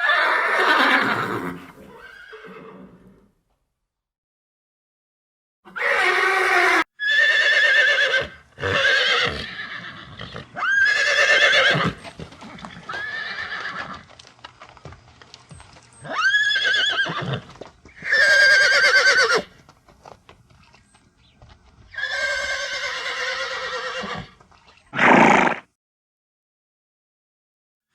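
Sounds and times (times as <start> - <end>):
horses neighing: 0.0 - 3.2, 5.7 - 14.2, 15.9 - 19.6, 21.9 - 25.6
hooves knocking: 11.8 - 16.5, 17.3 - 22.2.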